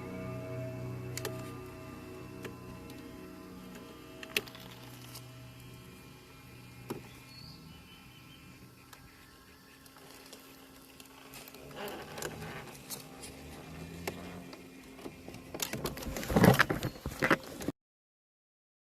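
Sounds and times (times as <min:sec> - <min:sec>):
toy car motor whine: 0:00.0 - 0:17.7
clicks: 0:01.1 - 0:05.9
tyres crunching over ground: 0:09.9 - 0:17.7.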